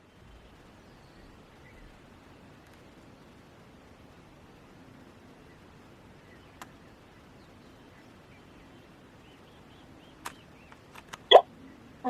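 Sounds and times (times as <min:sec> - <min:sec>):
faint background hiss: 0:00.0 - 0:12.0
faint high chirps: 0:05.0 - 0:12.0
sharp click: 0:10.2 - 0:11.4.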